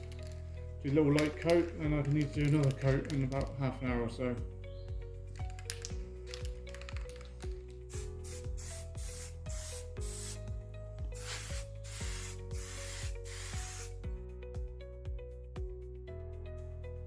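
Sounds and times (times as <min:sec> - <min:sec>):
aerosol spray hissing bursts: 0:07.9 - 0:10.5, 0:11.1 - 0:14.0.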